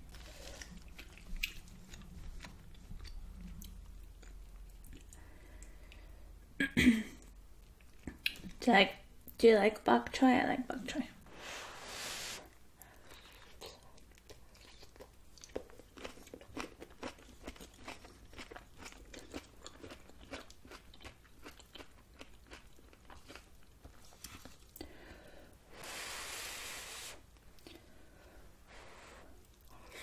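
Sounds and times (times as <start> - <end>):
crunchy chewing: 13.1 - 24.7.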